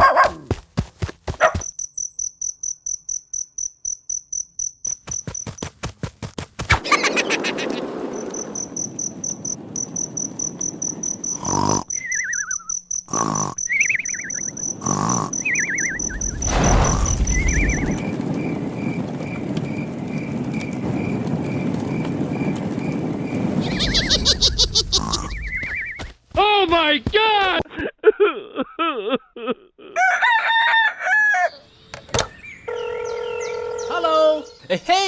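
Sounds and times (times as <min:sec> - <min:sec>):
insects chirping: 0:00.0 - 0:27.3
steady rushing background: 0:04.9 - 0:11.2
falling bird-like chirps: 0:04.9 - 0:18.6, 0:23.4 - 0:26.2.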